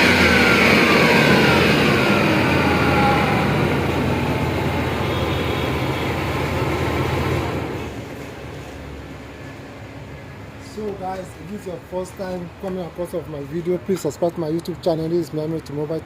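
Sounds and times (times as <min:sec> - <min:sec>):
car engine revving and idling: 0:00.0 - 0:08.0.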